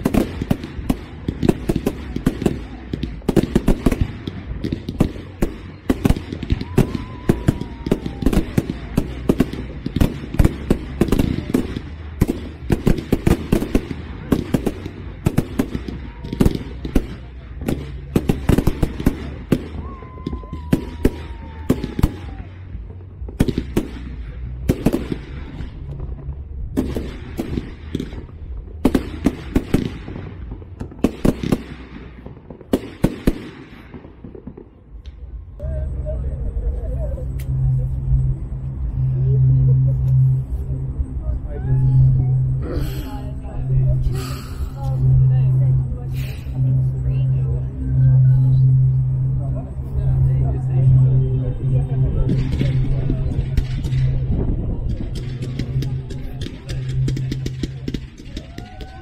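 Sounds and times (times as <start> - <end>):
fireworks bangs and crackles: 0.0 - 59.0
falling firework whistle: 6.4 - 8.9, 19.3 - 22.5.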